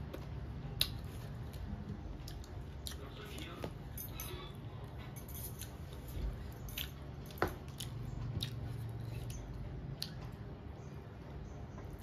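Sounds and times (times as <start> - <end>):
person chewing with wet smacks: 0.0 - 3.3, 6.8 - 10.5.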